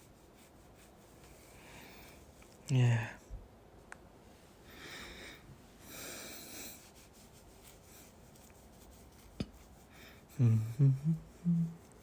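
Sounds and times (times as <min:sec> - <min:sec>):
man breathing softly: 0:01.2 - 0:02.4, 0:04.6 - 0:06.9.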